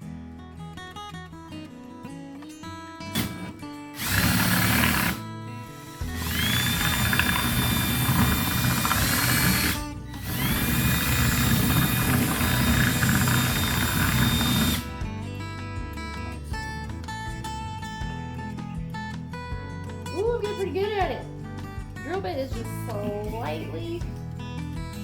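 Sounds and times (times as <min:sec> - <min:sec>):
acoustic guitar music: 0:00.0 - 0:04.0, 0:04.6 - 0:06.2, 0:07.5 - 0:10.9, 0:14.8 - 0:25.0
electric drill whining: 0:03.2 - 0:15.0.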